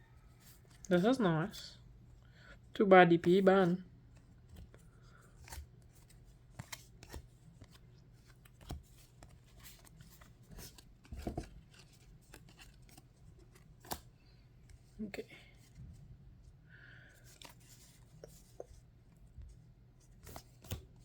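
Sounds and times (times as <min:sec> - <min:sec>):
trading cards clicking and rustling: 0:04.1 - 0:14.1, 0:20.1 - 0:21.0.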